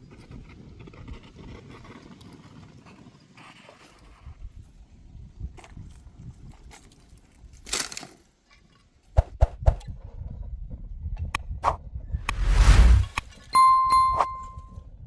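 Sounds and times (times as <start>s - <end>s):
short rush of noise: 12.2s - 13.4s.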